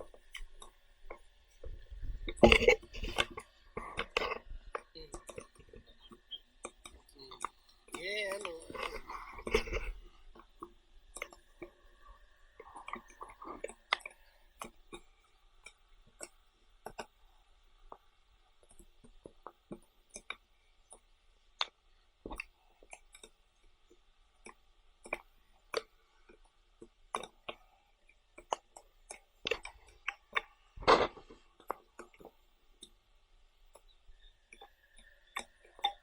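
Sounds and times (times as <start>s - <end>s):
chewing clicks and taps: 0.0s - 11.8s, 12.6s - 17.2s, 18.6s - 33.0s, 33.7s - 36.0s.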